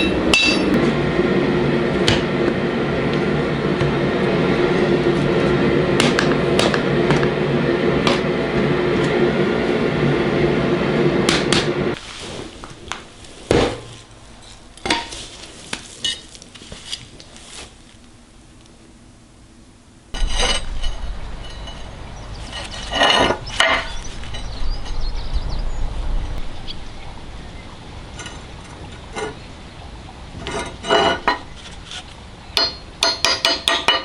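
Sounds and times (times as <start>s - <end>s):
machine running with low hum: 0.0s - 12.0s, 17.9s - 33.0s
loud rumbling noise: 0.0s - 13.2s, 20.0s - 33.0s.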